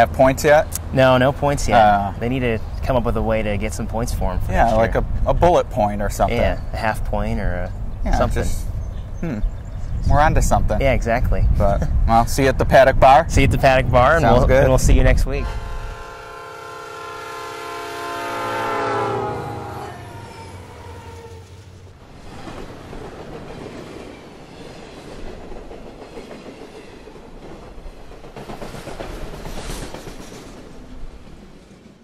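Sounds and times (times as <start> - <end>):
train rumbling and clattering by: 0.0 - 32.0
train horn chord: 15.4 - 21.6.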